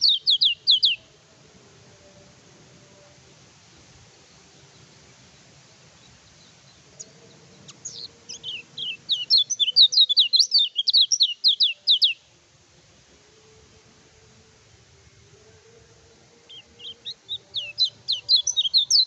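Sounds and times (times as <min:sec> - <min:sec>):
bird singing chattering phrase: 0:07.7 - 0:12.2, 0:16.8 - 0:19.0.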